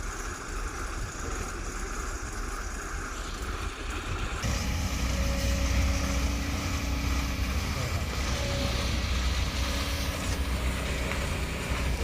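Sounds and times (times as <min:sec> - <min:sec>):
steady whine: 0:00.1 - 0:12.0
diesel machinery engine rumble: 0:04.4 - 0:12.0.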